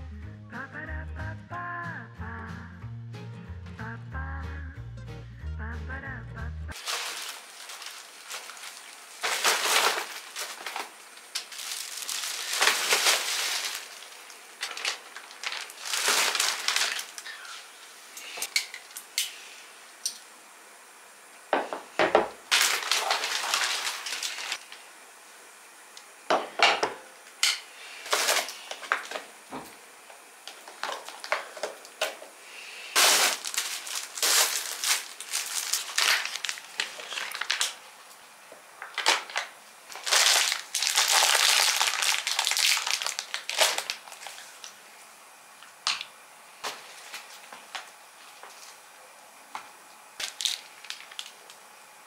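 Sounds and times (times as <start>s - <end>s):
rustling and scraping: 6.8s - 17.4s, 33.0s - 37.4s.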